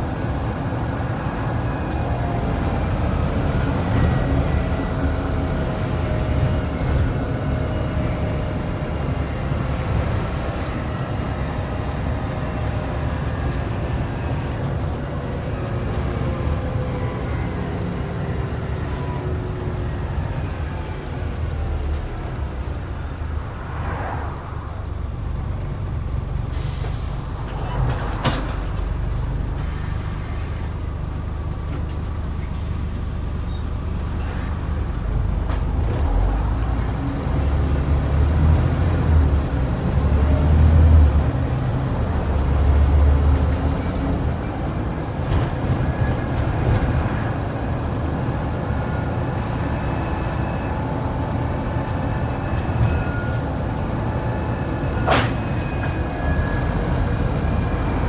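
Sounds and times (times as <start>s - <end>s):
bus diesel engine running: 0.0s - 58.0s
air brake hisses: 9.7s - 10.8s, 26.5s - 28.7s, 29.6s - 30.8s, 32.5s - 35.0s, 49.4s - 50.4s.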